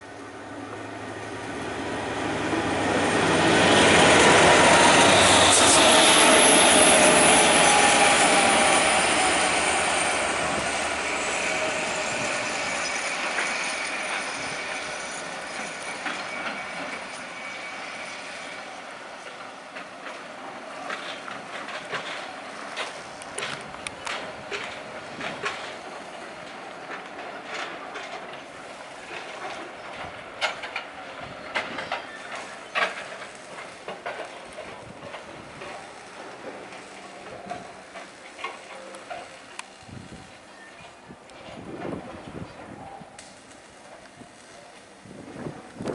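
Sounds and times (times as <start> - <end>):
diesel locomotive moving away: 0.0 - 45.9
wheels clicking over rail joints: 0.1 - 45.9
high wheel squeal: 2.8 - 19.4.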